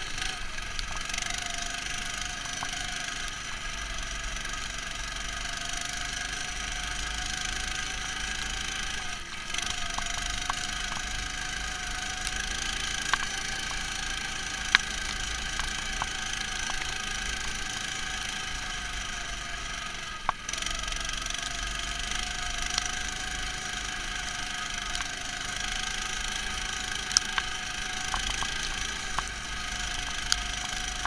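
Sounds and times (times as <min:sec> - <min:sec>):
muffled tractor engine running: 0:00.0 - 0:31.0
sharp clicks and knocks: 0:14.6 - 0:17.1, 0:26.7 - 0:31.0.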